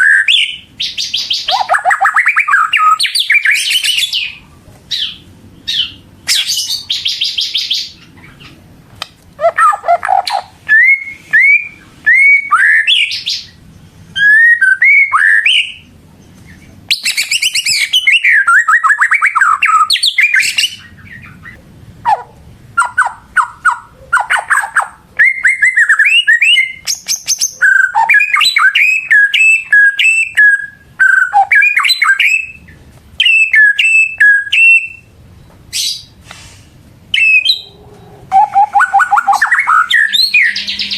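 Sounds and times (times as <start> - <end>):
songbird whistling and trilling: 0.0 - 8.5, 9.4 - 13.6, 14.2 - 15.9, 16.9 - 22.2, 22.8 - 35.1, 35.7 - 36.2, 37.1 - 40.9.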